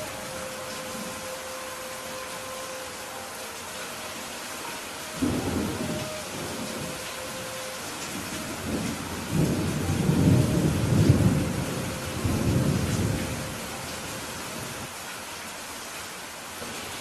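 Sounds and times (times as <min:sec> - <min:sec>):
steady rain falling: 0:00.0 - 0:17.0
rolling thunder: 0:05.2 - 0:14.0.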